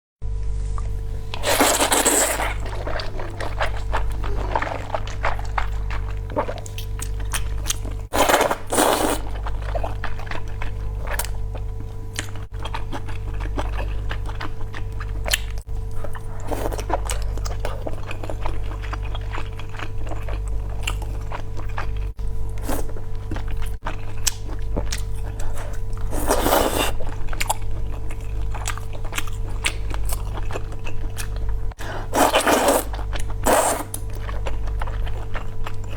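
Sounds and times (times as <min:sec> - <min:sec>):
noodle slurps: 0:01.3 - 0:06.8, 0:08.1 - 0:10.1, 0:26.0 - 0:27.1, 0:31.8 - 0:34.0
wet chewing clicks: 0:01.3 - 0:35.9.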